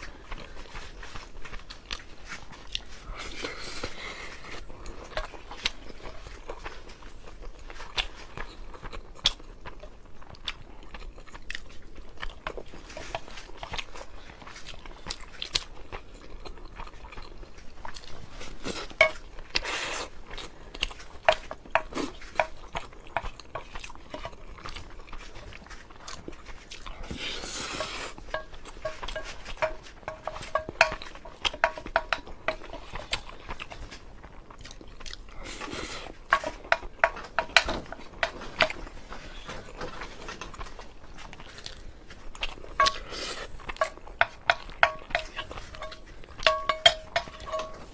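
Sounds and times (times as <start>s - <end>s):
person chewing: 0.0s - 47.9s
utensil clinking against bowl: 19.0s - 19.2s, 27.8s - 32.9s, 36.3s - 38.8s, 43.7s - 47.9s.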